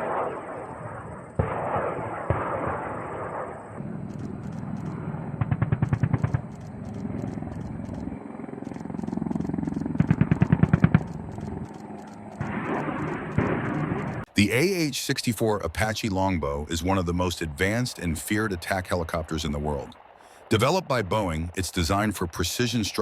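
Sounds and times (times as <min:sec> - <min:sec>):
automatic gunfire: 0:01.4 - 0:03.6, 0:05.4 - 0:06.7, 0:10.0 - 0:11.2, 0:12.4 - 0:14.2.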